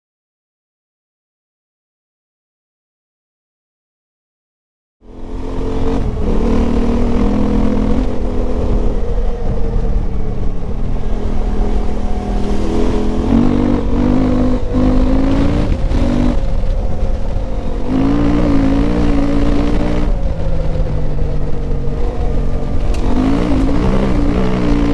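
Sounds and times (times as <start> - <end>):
loud motorcycle engine revving: 5.0 - 24.9.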